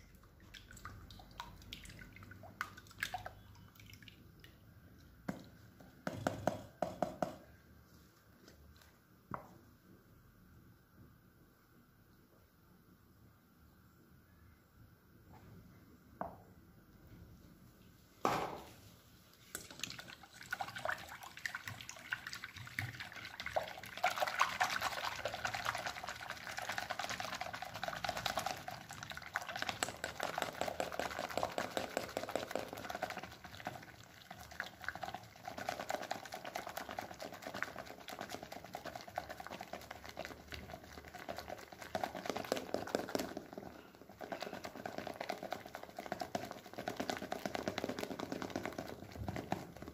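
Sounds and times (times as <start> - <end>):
liquid mixing with wet clicking: 0.0 - 7.0, 19.3 - 49.9.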